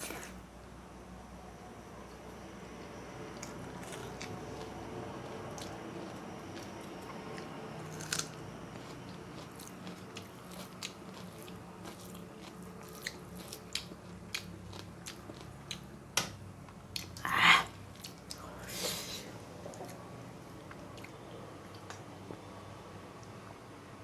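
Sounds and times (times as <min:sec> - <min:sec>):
person chewing food: 0:03.3 - 0:16.0, 0:16.9 - 0:18.6
crunchy bite: 0:07.9 - 0:10.0.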